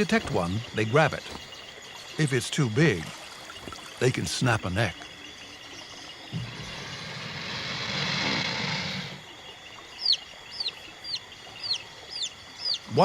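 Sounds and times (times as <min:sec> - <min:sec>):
bird chicks peeping: 0:09.9 - 0:12.9.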